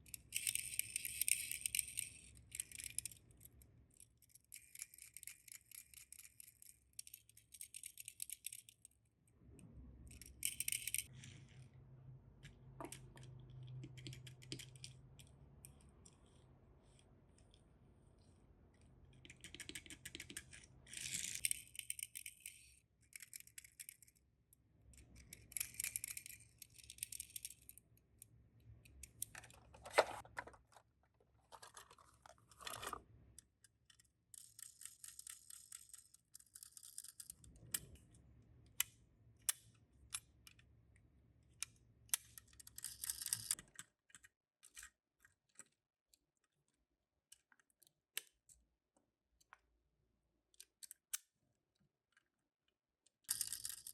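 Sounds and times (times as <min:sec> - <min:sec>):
small clicks and taps of toy cars: 0:00.0 - 0:09.0, 0:12.4 - 0:17.6, 0:18.8 - 0:24.3, 0:31.5 - 0:49.8, 0:50.5 - 0:53.9
hands rustling toy packaging: 0:29.3 - 0:33.0.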